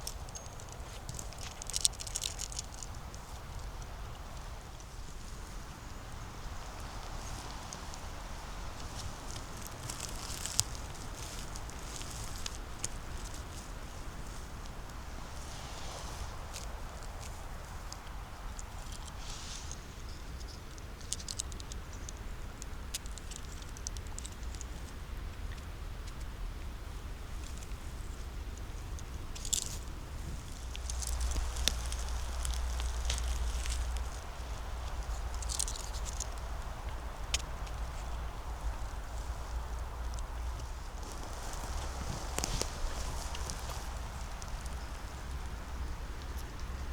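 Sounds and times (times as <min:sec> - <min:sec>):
footsteps crunching through dry leaves: 0:29.4 - 0:45.4
twig snapping: 0:30.5 - 0:44.8.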